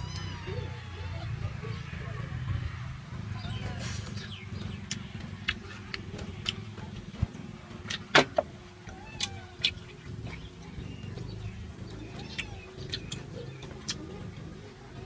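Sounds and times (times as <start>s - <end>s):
steady low rumble: 0.0s - 15.0s
chewing and lip smacks: 9.2s - 14.6s.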